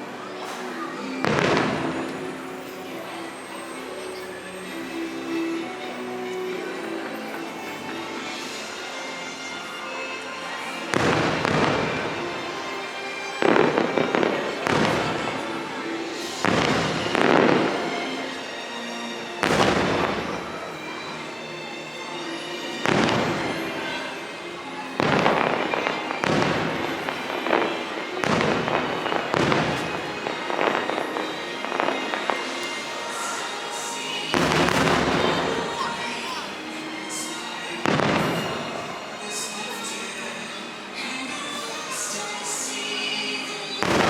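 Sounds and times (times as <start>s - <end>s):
fireworks show music: 0.0s - 44.0s
fireworks bangs and crackle: 0.5s - 4.2s, 10.9s - 18.2s, 19.4s - 21.0s, 22.8s - 24.1s, 25.0s - 33.4s, 34.1s - 36.4s, 37.8s - 39.0s, 43.8s - 44.0s.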